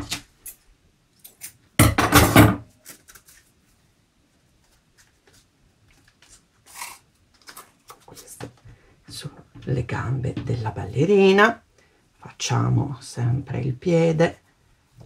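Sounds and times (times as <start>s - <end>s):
faint paper rustles: 2.7s - 8.7s.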